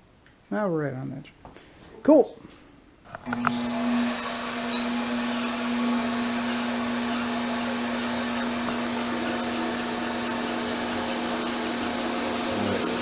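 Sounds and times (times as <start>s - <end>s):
balancing machine spinning: 6.5s - 13.0s.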